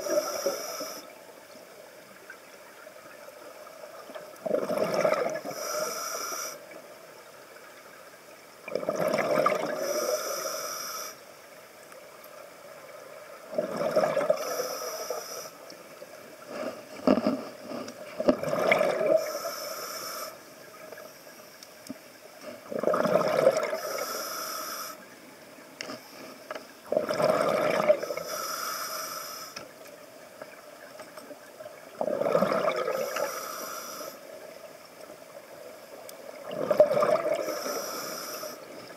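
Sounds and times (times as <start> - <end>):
exhaled bubbles gurgling underwater: 2.9 - 6.4, 8.6 - 10.6, 12.4 - 15.2, 18.0 - 19.8, 22.6 - 24.2, 26.8 - 28.5, 31.4 - 38.9.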